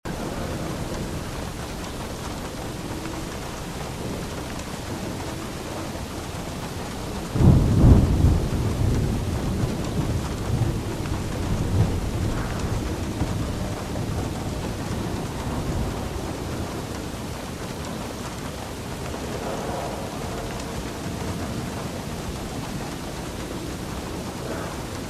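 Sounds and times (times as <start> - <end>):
steady rain: 0.0 - 25.0
thunder rumbling: 0.1 - 25.0.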